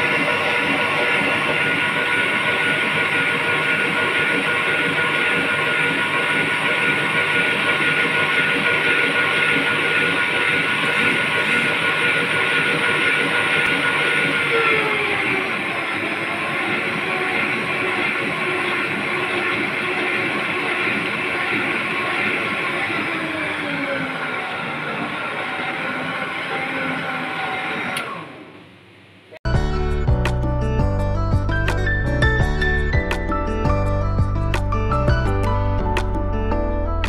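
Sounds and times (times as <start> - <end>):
electric mixer motor whining: 0.0 - 28.7.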